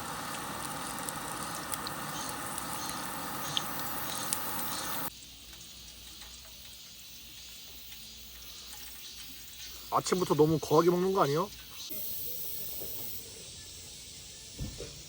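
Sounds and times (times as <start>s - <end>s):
squid sizzling in oil: 0.0s - 14.6s
small oil pops: 0.2s - 5.1s.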